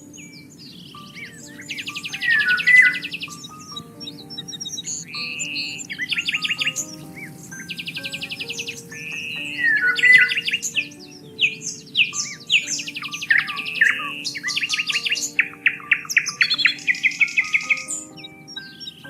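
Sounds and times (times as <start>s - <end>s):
soft background music: 0.0s - 19.0s
songbirds chirping and singing: 0.0s - 19.0s.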